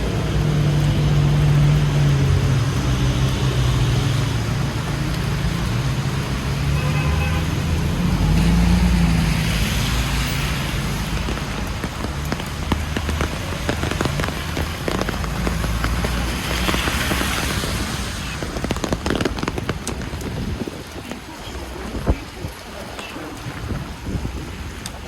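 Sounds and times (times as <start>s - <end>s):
low traffic rumble: 0.0s - 25.0s
rain drops ticking: 0.0s - 25.0s
vehicles passing on wet road: 0.0s - 25.0s.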